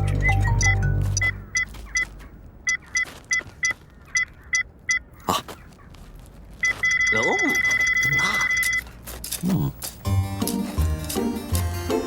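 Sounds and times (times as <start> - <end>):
short electronic beeps: 0.0 - 5.1, 6.6 - 8.9
long steady beep: 6.6 - 8.9.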